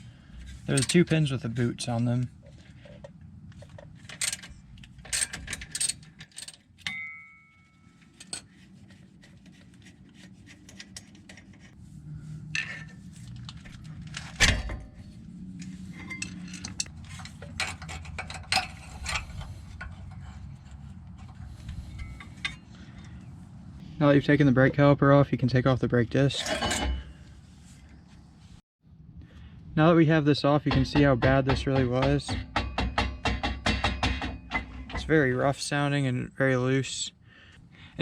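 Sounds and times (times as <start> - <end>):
metal tools clinking: 0.6 - 8.5, 15.6 - 23.1, 26.3 - 27.2
heavy metal clunk: 31.6 - 35.2.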